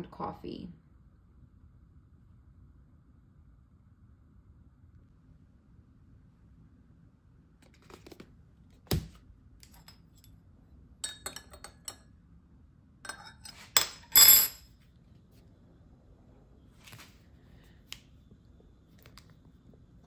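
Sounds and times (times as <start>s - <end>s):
dishes clattering: 11.0s - 12.0s, 13.1s - 14.6s
dishes clinking: 11.0s - 12.0s, 13.1s - 14.6s.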